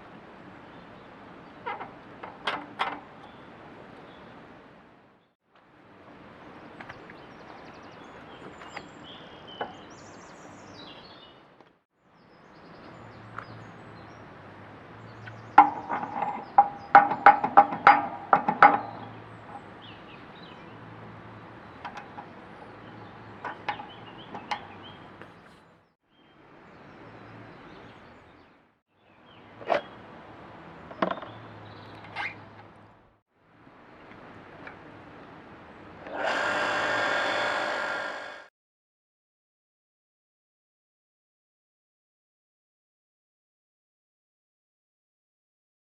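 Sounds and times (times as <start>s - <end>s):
metal-on-metal knocks: 15.6s - 19.2s.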